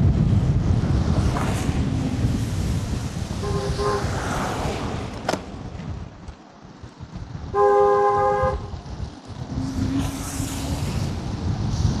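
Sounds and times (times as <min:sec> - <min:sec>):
wind buffeting microphone: 0:00.0 - 0:12.0
two-tone vehicle horn blare: 0:03.4 - 0:04.1, 0:07.5 - 0:08.7.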